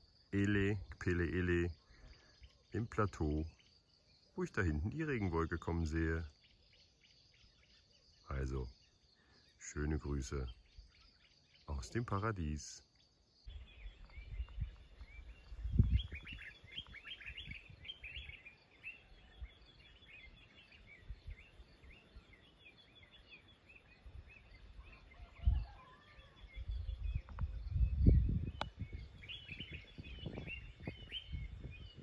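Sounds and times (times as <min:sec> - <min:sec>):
wild birds chirping and calling: 0:00.0 - 0:32.0.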